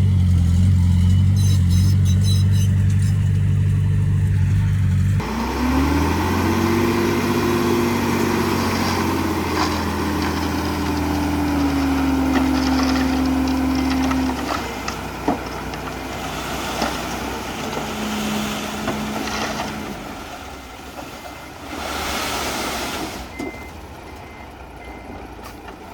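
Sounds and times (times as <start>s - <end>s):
diesel engine running: 0.0s - 25.9s
engine revving up: 4.3s - 20.2s.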